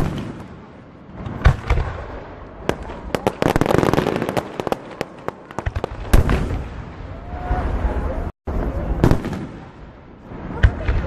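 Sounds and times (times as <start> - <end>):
fireworks bangs: 0.0 - 11.0
fireworks crackling pops: 1.2 - 6.7.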